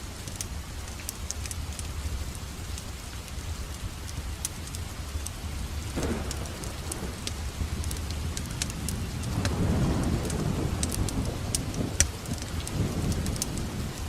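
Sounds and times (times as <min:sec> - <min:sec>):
fireplace crackling: 0:00.0 - 0:14.0
steady rain: 0:00.0 - 0:14.0
low rumble: 0:04.9 - 0:14.0.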